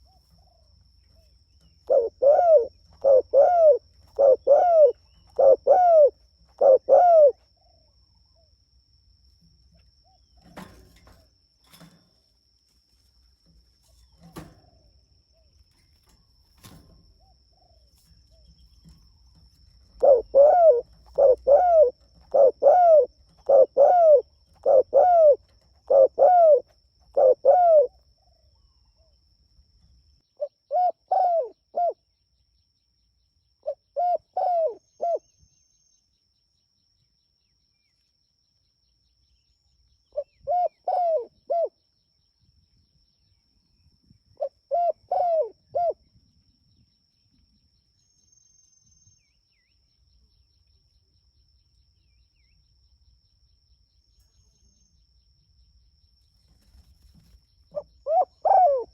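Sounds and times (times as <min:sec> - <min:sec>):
dove cooing: 0:01.2 - 0:07.9, 0:16.6 - 0:28.3, 0:30.4 - 0:32.0, 0:33.6 - 0:35.2, 0:40.2 - 0:41.7, 0:44.4 - 0:46.0, 0:57.7 - 0:58.9.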